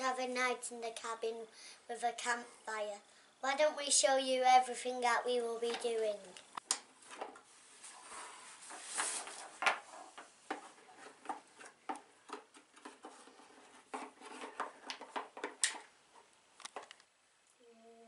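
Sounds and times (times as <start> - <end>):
small objects clicking and knocking: 13.9 - 17.1.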